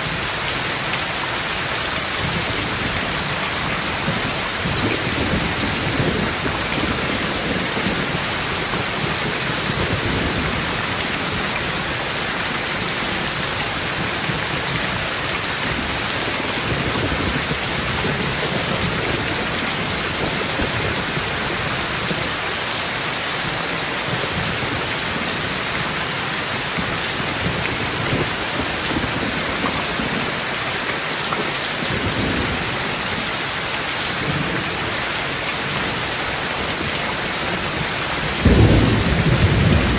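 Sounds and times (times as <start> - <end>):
heavy rain: 0.0 - 39.9
low rolling thunder: 2.2 - 12.2, 36.8 - 39.9.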